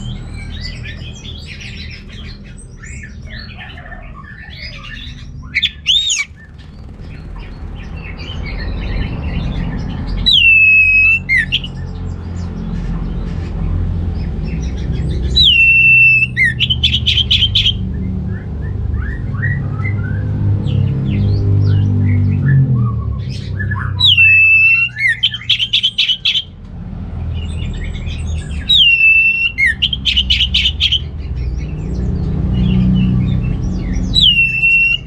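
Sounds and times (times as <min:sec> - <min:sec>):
drawn-out falling whistles: 0:05.6 - 0:06.3, 0:10.3 - 0:11.7, 0:15.4 - 0:17.8, 0:24.0 - 0:26.5, 0:28.7 - 0:31.0, 0:34.2 - 0:35.0
thrush singing: 0:05.6 - 0:06.6, 0:10.2 - 0:11.8, 0:15.3 - 0:17.8, 0:24.0 - 0:26.5, 0:28.6 - 0:31.1, 0:34.1 - 0:35.0.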